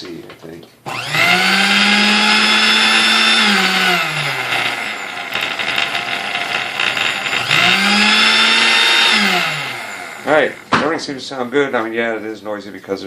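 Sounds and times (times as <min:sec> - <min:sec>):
mixer motor whine: 0:00.9 - 0:10.9.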